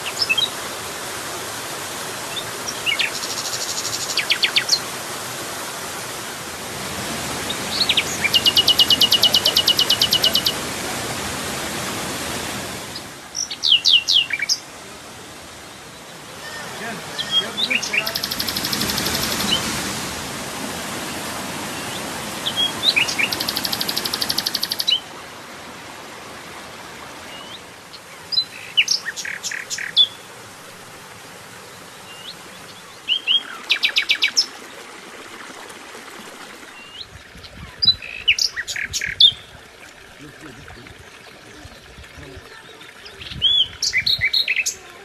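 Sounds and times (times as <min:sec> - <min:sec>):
songbird singing: 0:00.0 - 0:00.6, 0:02.3 - 0:04.9, 0:07.4 - 0:10.8, 0:12.8 - 0:20.0, 0:21.2 - 0:25.2, 0:27.2 - 0:30.4, 0:31.6 - 0:34.6, 0:36.7 - 0:45.0.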